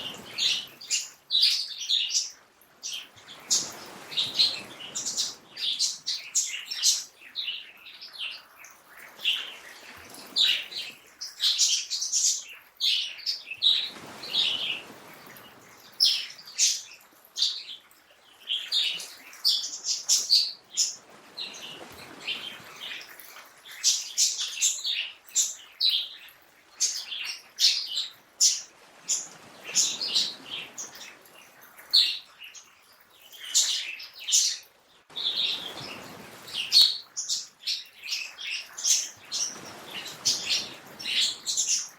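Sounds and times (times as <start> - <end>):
songbirds chirping and singing: 0.0 - 41.9.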